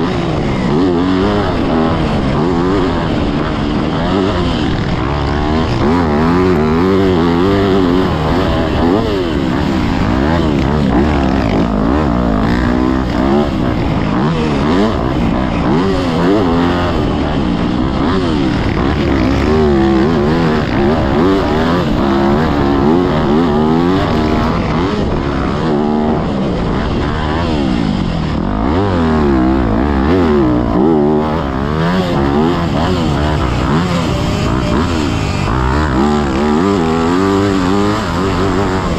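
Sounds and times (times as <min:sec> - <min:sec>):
motocross engine revving: 0:00.0 - 0:38.9
steady rush of noise: 0:00.0 - 0:38.9.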